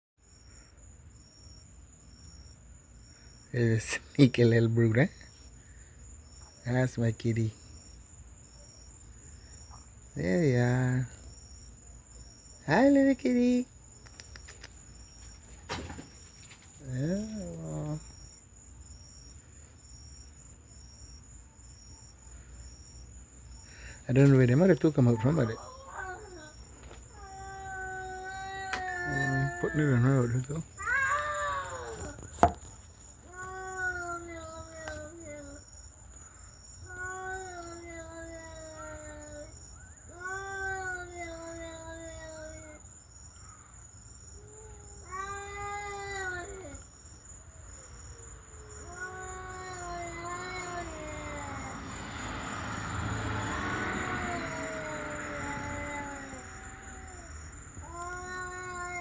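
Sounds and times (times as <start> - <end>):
cricket chirping: 0.2 - 59.0
kitten wailing meows: 27.2 - 30.0, 30.8 - 32.2, 48.6 - 51.7, 53.9 - 59.0.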